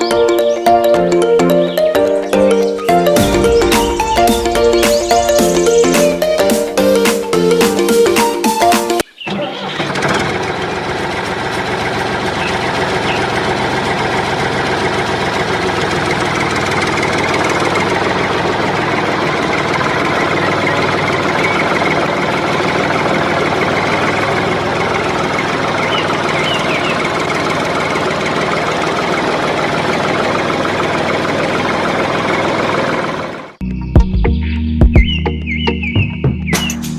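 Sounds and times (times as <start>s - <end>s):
small engine running: 9.4s - 33.6s.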